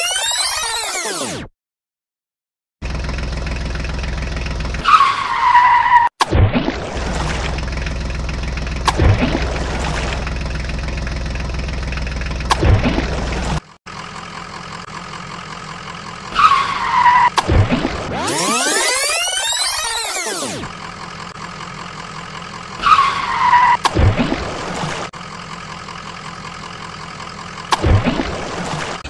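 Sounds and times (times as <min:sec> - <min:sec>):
engine idling hum: 0:02.8 - 0:04.9, 0:06.8 - 0:18.7, 0:20.0 - 0:29.0
engine revving: 0:06.8 - 0:25.2.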